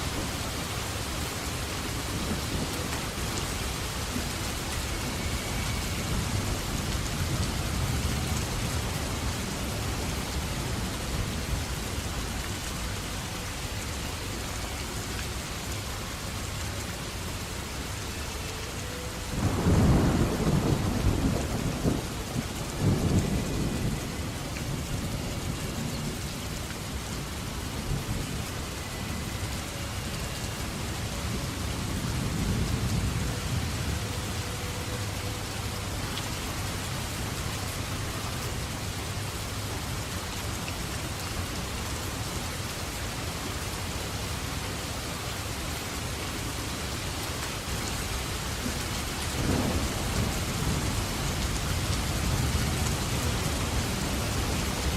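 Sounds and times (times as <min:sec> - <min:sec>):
heavy rain falling: 0:00.0 - 0:54.9
thunder crack and rumble: 0:19.4 - 0:26.2, 0:48.6 - 0:54.9.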